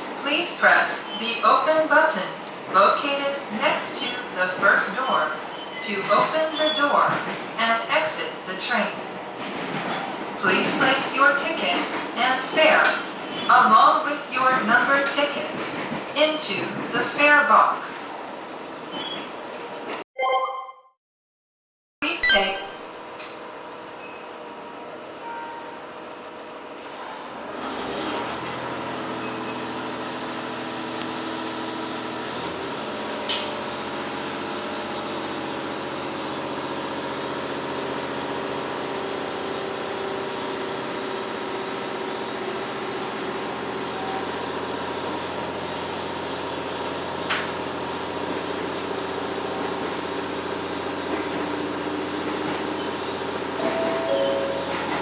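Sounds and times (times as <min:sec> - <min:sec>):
rail noise: 0:00.0 - 0:20.0, 0:22.9 - 0:55.0
railcar engine hum: 0:00.0 - 0:20.0, 0:22.8 - 0:55.0.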